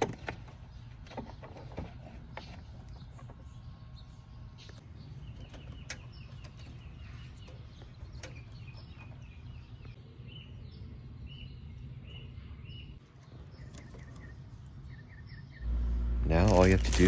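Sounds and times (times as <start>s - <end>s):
steady low rumble: 15.6s - 17.0s.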